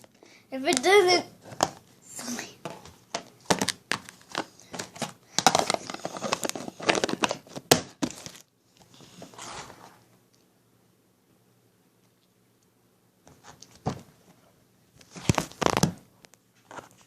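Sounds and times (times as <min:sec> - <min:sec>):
packaging crinkling: 0:03.4 - 0:08.5.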